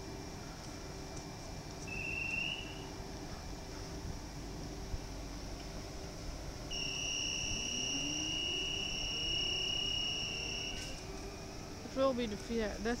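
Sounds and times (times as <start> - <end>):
low whine rising: 4.1 - 12.0
high-pitched electronic warning tone: 6.7 - 11.0.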